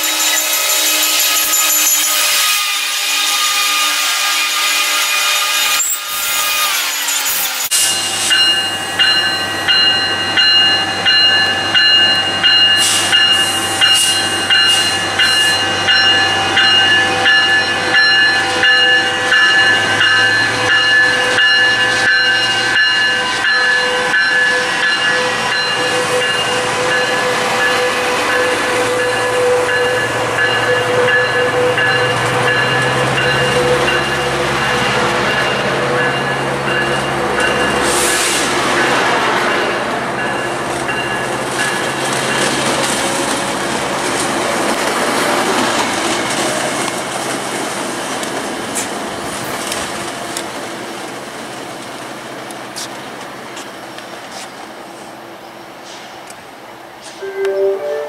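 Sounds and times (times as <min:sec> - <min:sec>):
wheels squealing on rails: 0:00.0 - 0:50.1
train rolling past: 0:00.0 - 0:58.0.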